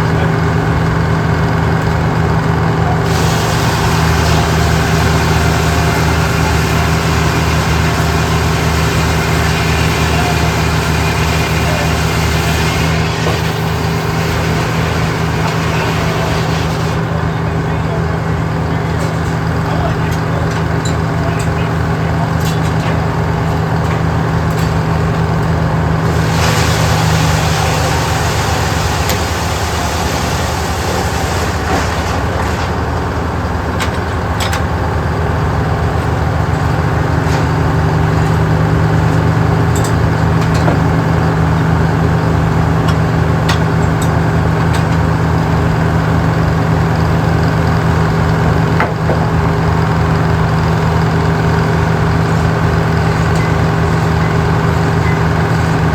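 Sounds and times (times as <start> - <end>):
large engine running: 0.0 - 55.9
hiss: 3.1 - 17.0, 26.1 - 31.9.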